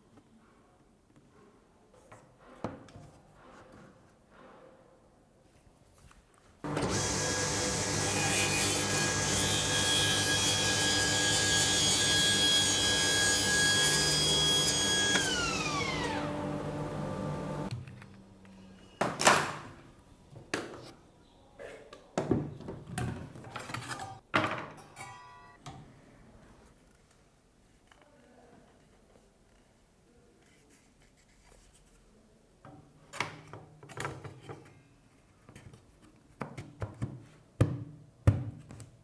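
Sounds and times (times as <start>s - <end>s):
power tool motor whining: 6.7s - 17.7s.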